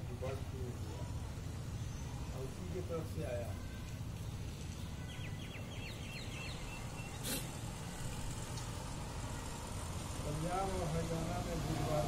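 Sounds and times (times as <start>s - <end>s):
small bird chirping: 1.4s - 8.0s.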